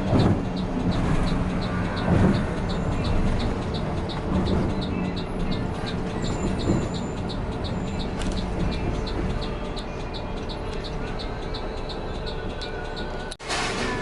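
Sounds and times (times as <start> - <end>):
light regular ticking: 0.0 - 13.4.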